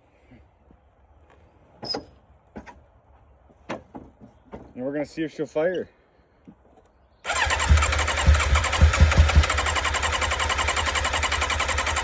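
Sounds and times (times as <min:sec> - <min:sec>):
electric starter cranking engine: 0:07.2 - 0:12.0
engine firing thumps: 0:07.3 - 0:11.7.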